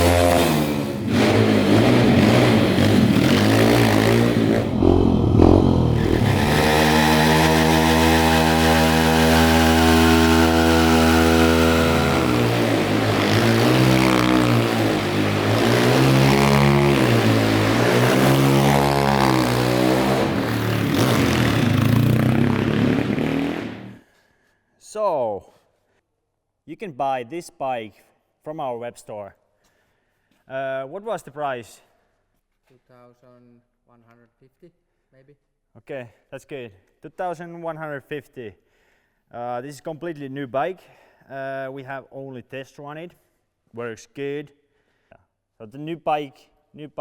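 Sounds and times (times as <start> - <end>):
motorbike engine revving: 0.0 - 24.0.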